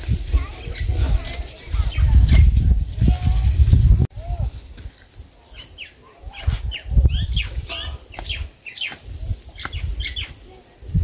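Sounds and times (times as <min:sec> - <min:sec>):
chickens chirping: 0:00.4 - 0:03.8, 0:05.2 - 0:11.0.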